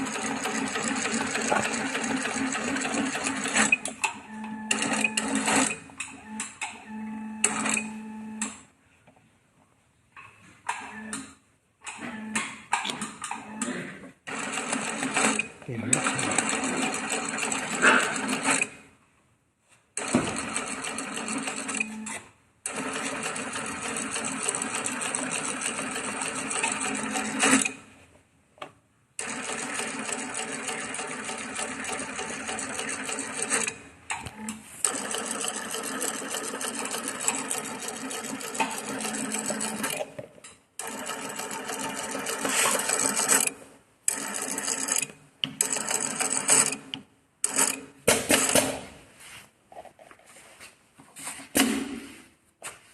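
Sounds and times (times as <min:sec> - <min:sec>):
industrial sewing machine stitching: 0:00.0 - 0:06.3, 0:14.3 - 0:18.8, 0:20.0 - 0:22.0, 0:22.7 - 0:27.8, 0:29.2 - 0:33.8, 0:34.4 - 0:40.1, 0:40.8 - 0:48.8.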